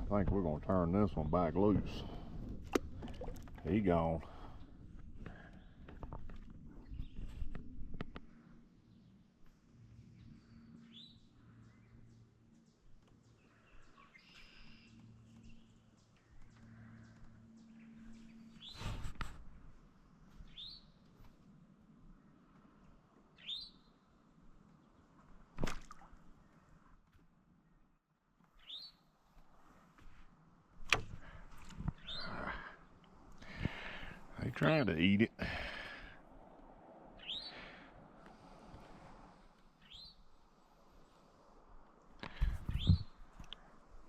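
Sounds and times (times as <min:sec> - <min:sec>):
faint bird chirps: 0:10.0 - 0:19.0, 0:20.4 - 0:21.0, 0:23.4 - 0:24.0, 0:28.6 - 0:29.1, 0:31.9 - 0:32.7, 0:37.2 - 0:37.8, 0:39.8 - 0:40.3, 0:42.2 - 0:43.6.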